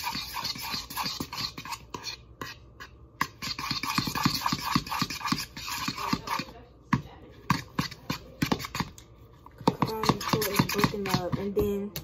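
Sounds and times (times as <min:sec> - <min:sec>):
utensil scraping a dish: 0:00.0 - 0:06.6, 0:07.3 - 0:11.8.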